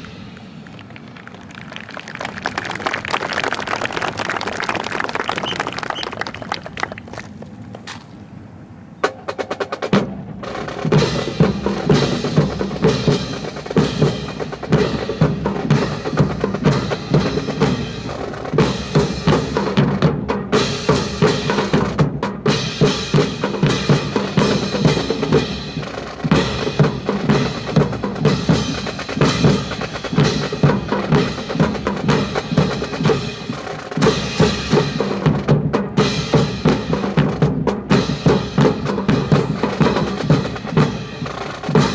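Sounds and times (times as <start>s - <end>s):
marching snare and bass drums: 8.9s - 41.9s.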